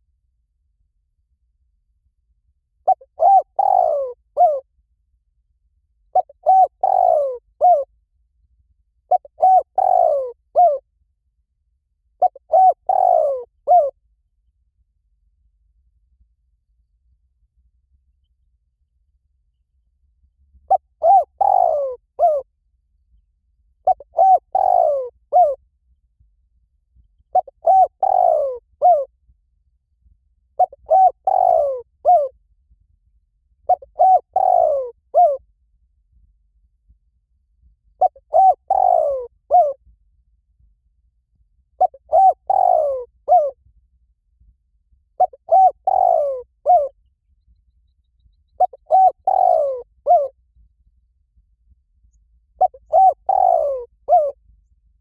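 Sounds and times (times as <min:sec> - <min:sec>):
dove cooing: 0:02.8 - 0:04.6, 0:06.1 - 0:07.9, 0:09.1 - 0:10.8, 0:12.2 - 0:14.0, 0:20.7 - 0:22.4, 0:23.8 - 0:25.6, 0:27.3 - 0:29.1, 0:30.6 - 0:32.3, 0:33.7 - 0:35.4, 0:38.0 - 0:39.8, 0:41.8 - 0:43.6, 0:45.2 - 0:47.0, 0:48.6 - 0:50.3, 0:52.6 - 0:54.4.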